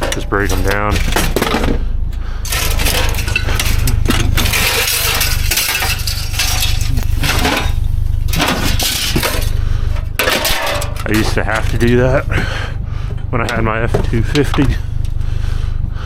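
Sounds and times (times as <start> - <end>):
scrap metal clanking and rattling: 0.0 - 15.6
steady low hum: 0.0 - 16.0.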